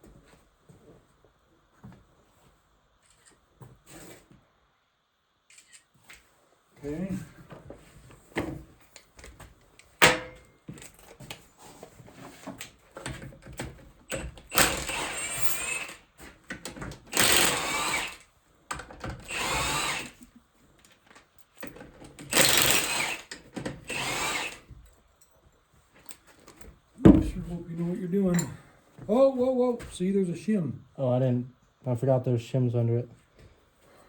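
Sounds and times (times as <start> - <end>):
power drill running: 14.5 - 16.1, 17.1 - 18.2, 19.2 - 20.2, 22.2 - 24.7
sharp knock: 27.1 - 27.5.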